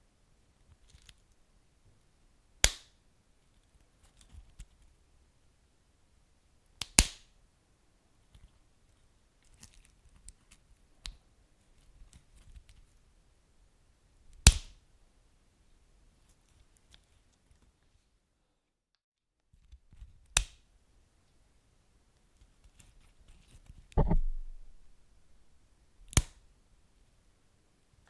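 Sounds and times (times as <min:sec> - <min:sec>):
loud sharp pops: 0:24.0 - 0:25.0
faint low rumble: 0:24.0 - 0:25.5.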